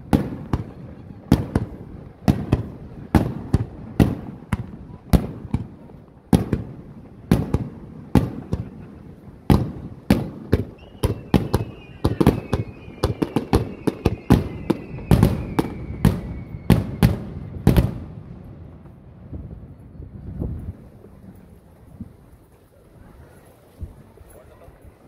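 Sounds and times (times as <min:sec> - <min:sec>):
fireworks bursting in sharp bangs: 0:00.0 - 0:19.5.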